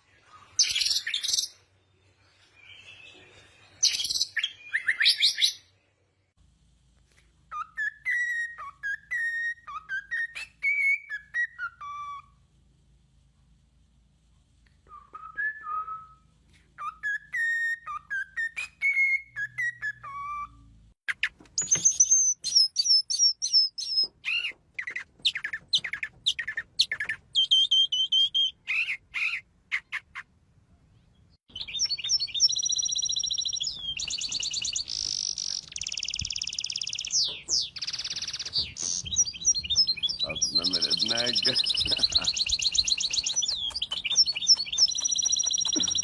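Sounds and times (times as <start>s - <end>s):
songbirds singing: 16.8s - 30.3s, 30.9s - 46.0s.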